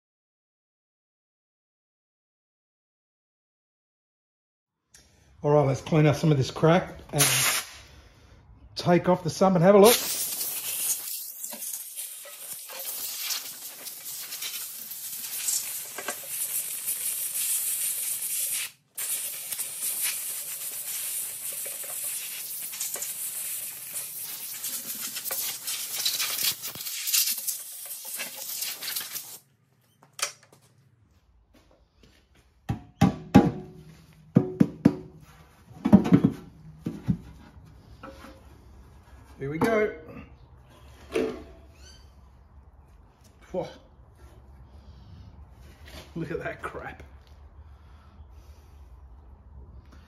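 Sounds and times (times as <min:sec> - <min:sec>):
scratchy hiss of cleaning grime: 0:09.8 - 0:29.4.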